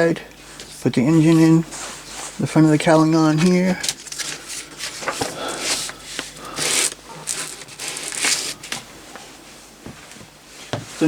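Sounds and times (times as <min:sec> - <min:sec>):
paper rustling and crinkling: 0:00.4 - 0:08.9.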